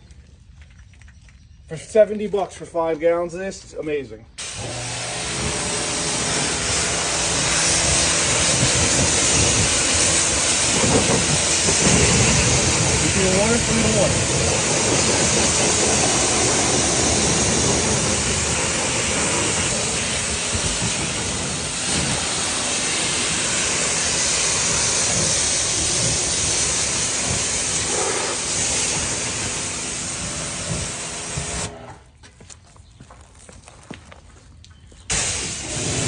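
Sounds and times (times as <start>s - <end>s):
pressure washer spraying water: 4.4s - 31.8s, 35.1s - 36.0s.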